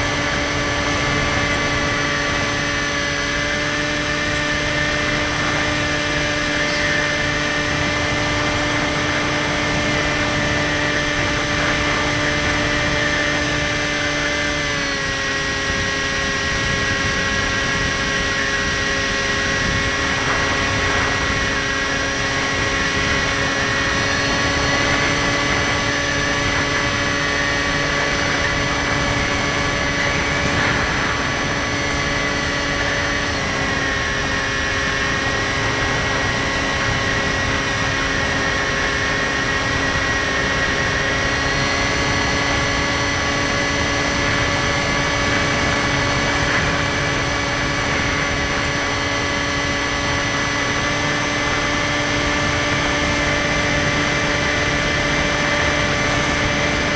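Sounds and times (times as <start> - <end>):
model plane motor whine: 0.0 - 56.9.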